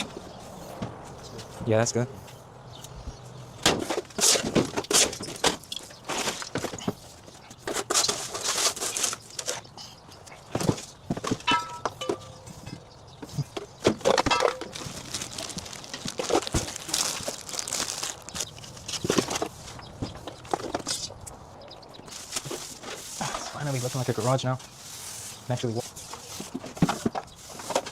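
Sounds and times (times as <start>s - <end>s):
household items knocking and clattering: 10.5s - 12.4s, 13.8s - 15.1s.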